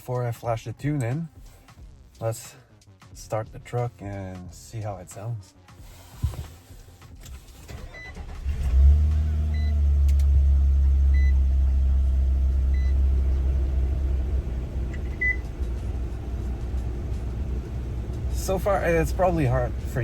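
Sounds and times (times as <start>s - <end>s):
car engine revving and idling: 5.8s - 20.0s.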